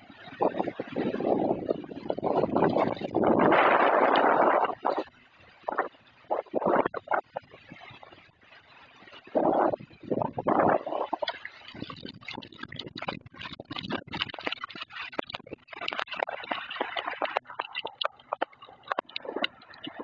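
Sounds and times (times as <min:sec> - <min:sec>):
wind: 0:00.0 - 0:20.0
raindrops tapping hard surface: 0:11.2 - 0:20.0.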